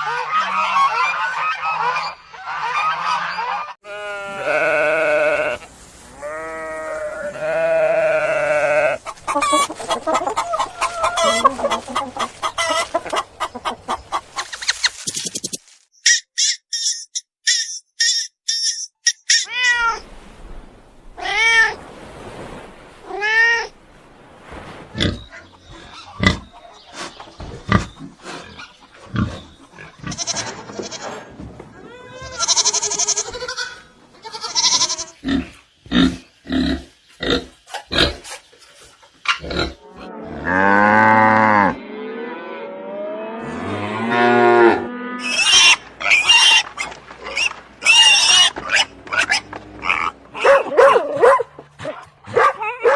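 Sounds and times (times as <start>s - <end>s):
quick high-pitched calls: 14.4s - 19.5s
cow mooing: 39.8s - 45.3s.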